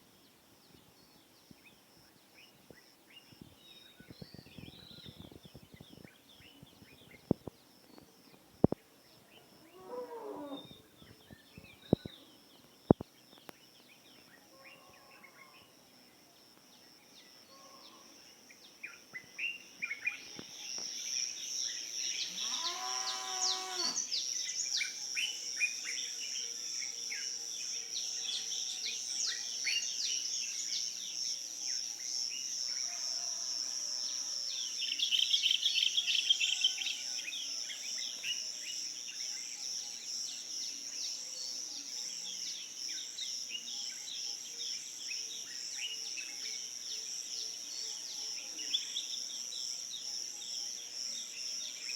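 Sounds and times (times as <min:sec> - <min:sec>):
small birds chirping: 0:00.7 - 0:09.6, 0:10.2 - 0:14.4
high insect drone: 0:01.6 - 0:51.9
cow mooing: 0:09.8 - 0:10.7, 0:22.4 - 0:24.0.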